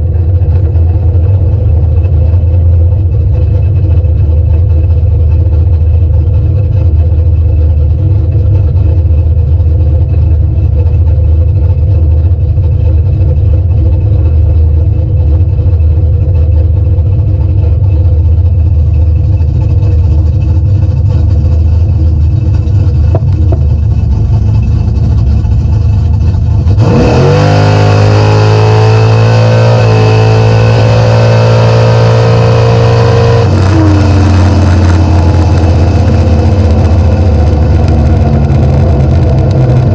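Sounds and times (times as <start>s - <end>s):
car engine revving: 9.9s - 39.9s.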